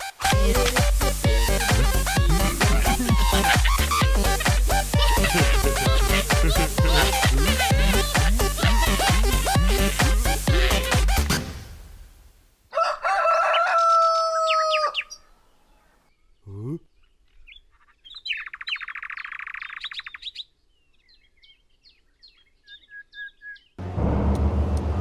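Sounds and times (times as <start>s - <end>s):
rapid buzzing trill: 0.1s - 11.4s
short bird tweets: 15.0s - 23.8s
rising swoop: 23.8s - 25.0s.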